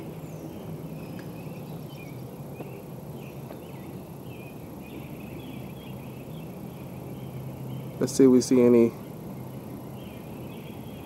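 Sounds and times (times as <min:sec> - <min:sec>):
songbirds chirping and warbling: 0:00.0 - 0:11.0
steady low hum: 0:00.0 - 0:11.0.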